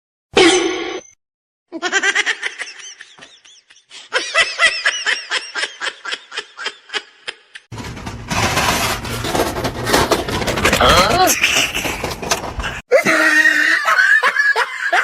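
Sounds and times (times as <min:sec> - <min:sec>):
person laughing in high bursts: 0:12.9 - 0:15.0.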